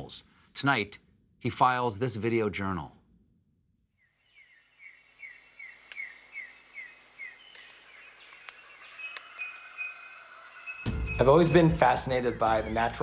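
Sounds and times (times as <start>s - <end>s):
bird descending chirp: 4.0s - 13.0s
birds calling: 4.0s - 13.0s.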